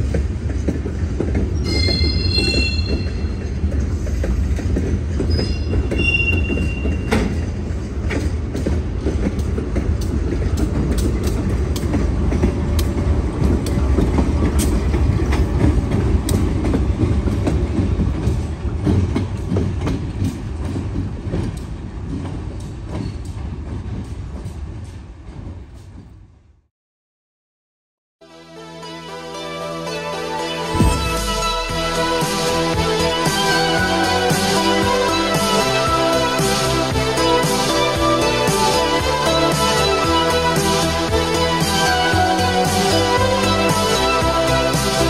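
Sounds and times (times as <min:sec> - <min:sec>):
wheels clicking over rail joints: 0:00.0 - 0:26.2
freight train rumbling: 0:00.0 - 0:26.7, 0:29.4 - 0:45.0
wheel squeal: 0:01.5 - 0:03.5, 0:05.2 - 0:07.4.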